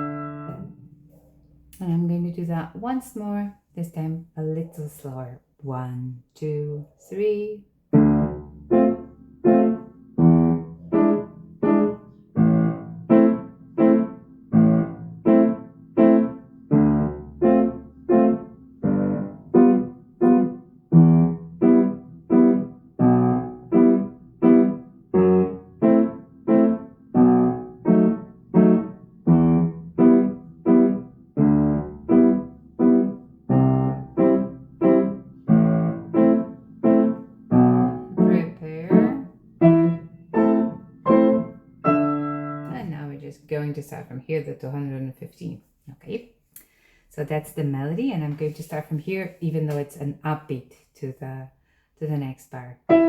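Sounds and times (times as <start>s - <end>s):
slow piano chords: 0.0s - 1.8s, 7.9s - 42.9s.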